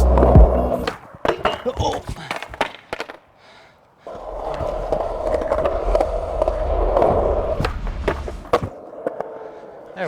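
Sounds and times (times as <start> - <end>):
skateboard clacks: 0.0 - 10.0
skateboard wheels rolling on pavement: 0.0 - 10.0.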